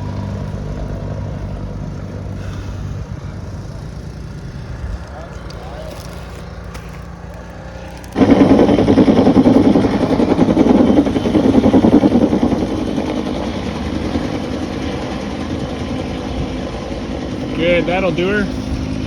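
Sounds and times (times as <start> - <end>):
engine running roughly: 0.0 - 19.0.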